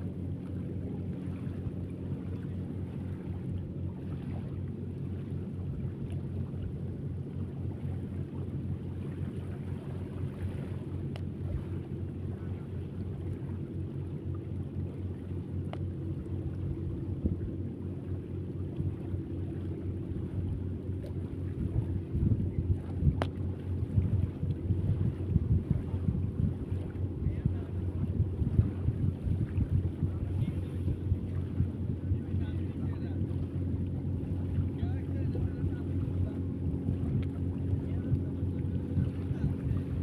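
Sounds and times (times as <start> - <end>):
low engine hum: 0.0 - 40.0
wind buffeting microphone: 16.2 - 18.2, 18.9 - 40.0.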